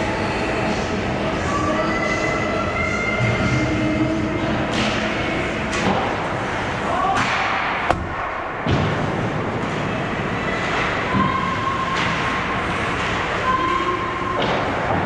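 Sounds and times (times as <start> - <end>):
hockey sticks and puck knocks: 7.1 - 9.8.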